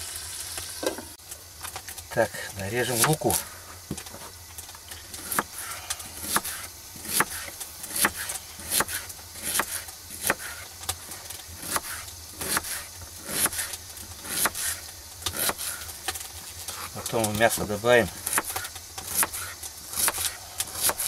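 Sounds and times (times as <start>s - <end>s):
knife chopping onion: 5.2s - 10.6s, 11.6s - 15.8s, 17.7s - 21.0s.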